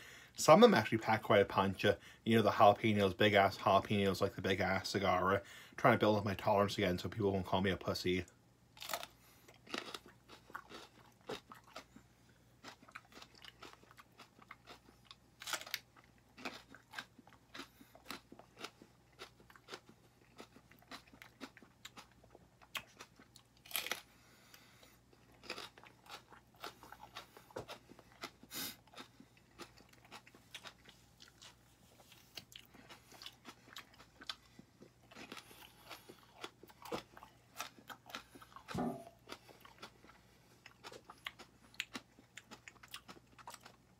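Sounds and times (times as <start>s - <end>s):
chewing crisp crunches: 8.8s - 43.9s.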